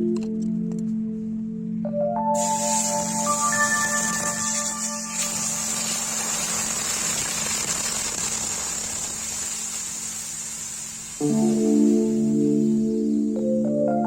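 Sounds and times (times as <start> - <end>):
background music: 0.0 - 5.7, 11.2 - 14.0
machine hissing rush: 2.4 - 13.6.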